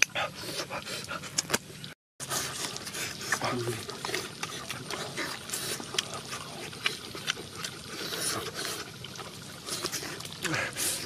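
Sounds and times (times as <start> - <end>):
lip smacks: 0.0 - 1.7
people chewing with mouths open: 0.0 - 11.0.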